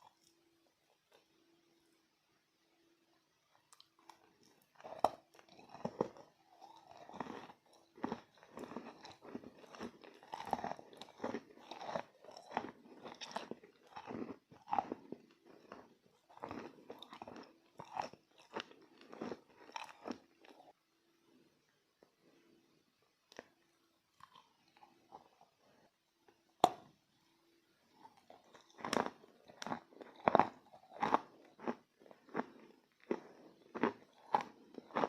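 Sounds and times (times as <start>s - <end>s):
chalk crunching being chewed: 3.7s - 20.8s, 28.0s - 35.0s.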